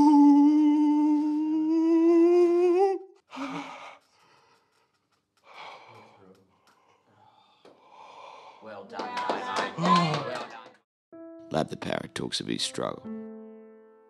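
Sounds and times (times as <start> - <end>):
person holding a long vocal note: 0.0 - 3.2
faint breaths: 3.3 - 8.7.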